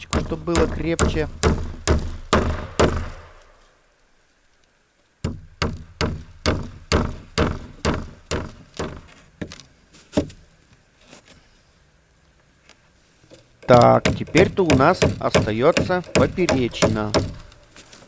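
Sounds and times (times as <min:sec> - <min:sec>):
hammer driving nails into wood: 0:00.0 - 0:03.7, 0:05.2 - 0:09.6, 0:13.6 - 0:17.7.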